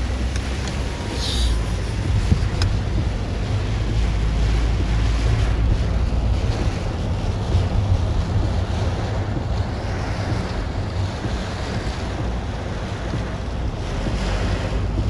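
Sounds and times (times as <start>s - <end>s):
strong wind buffeting microphone: 0.0s - 15.0s
faint tick: 2.3s - 2.8s.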